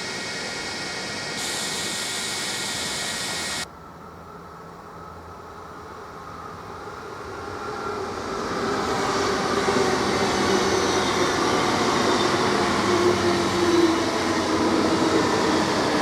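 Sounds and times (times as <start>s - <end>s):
electric train whining: 0.0s - 4.0s.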